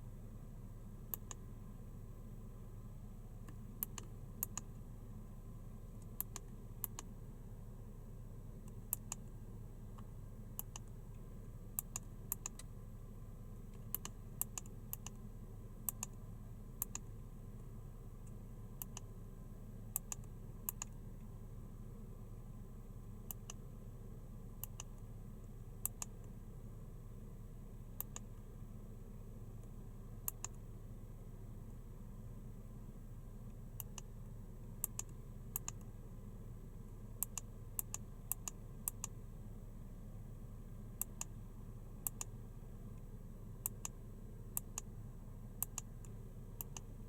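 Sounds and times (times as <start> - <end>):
low steady hum: 0.0 - 47.0
sharp clicks: 3.5 - 4.7, 6.0 - 7.1, 10.0 - 11.0, 11.8 - 12.7, 13.7 - 15.2, 16.8 - 17.1, 18.2 - 19.1, 19.9 - 21.0, 24.6 - 25.0, 25.8 - 26.3, 28.0 - 28.3, 34.8 - 35.9, 37.2 - 39.2, 41.0 - 41.4, 42.0 - 42.3, 45.6 - 46.9.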